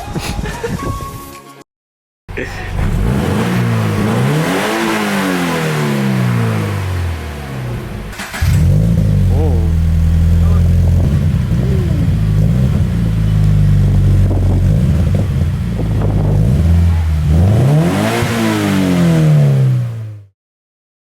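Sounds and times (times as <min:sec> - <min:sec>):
car engine idling through exhaust: 0:02.3 - 0:04.2, 0:04.9 - 0:17.4
car engine revving: 0:02.3 - 0:20.3.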